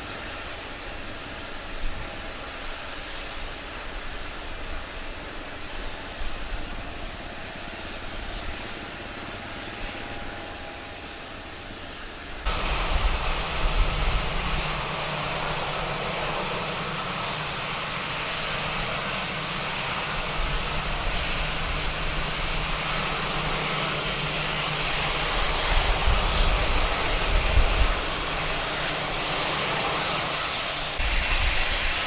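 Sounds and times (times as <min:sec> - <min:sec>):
jet engines running: 0:00.0 - 0:32.0
wind buffeting microphone: 0:11.7 - 0:32.0.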